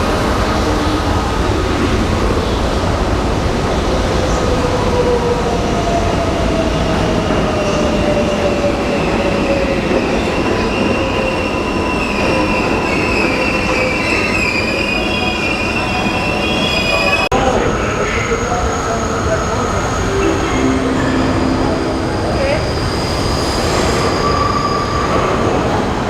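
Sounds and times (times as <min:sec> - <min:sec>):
subway train rumbling on rails: 0:00.0 - 0:26.0
low falling tone: 0:20.0 - 0:23.6.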